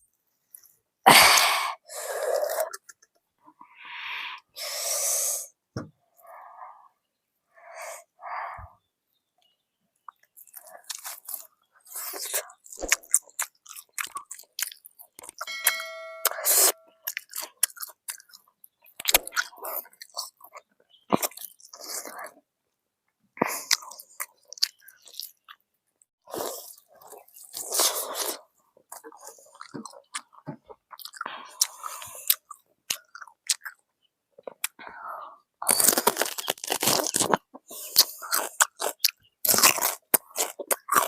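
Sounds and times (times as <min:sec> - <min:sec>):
person crunching fried chicken: 0:10.2 - 0:15.4, 0:23.5 - 0:25.6, 0:35.6 - 0:41.0.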